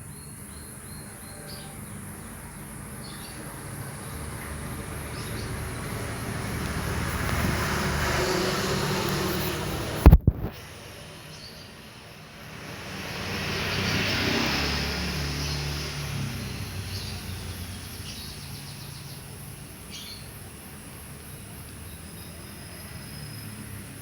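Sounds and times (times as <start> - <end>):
bird chirps: 0.0 - 2.3
motor vehicle passing by: 0.6 - 24.0
sharp thumps: 9.5 - 10.6.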